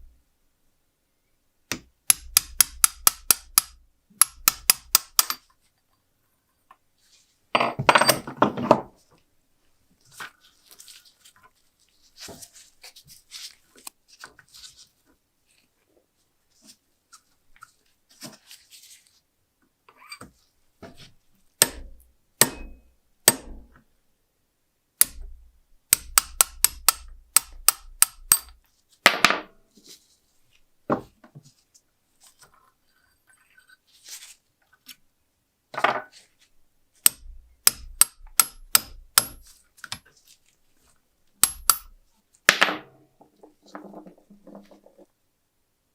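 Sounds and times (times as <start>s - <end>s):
hand tools tapping metal: 1.7s - 5.4s, 21.6s - 23.5s, 25.9s - 28.6s, 37.0s - 40.1s, 41.4s - 42.0s.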